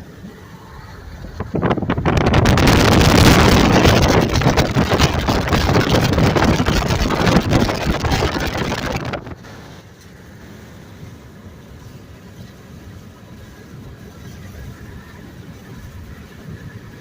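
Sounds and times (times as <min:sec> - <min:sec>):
wind rushing over microphone: 0:00.0 - 0:09.8
car road noise: 0:00.0 - 0:10.0.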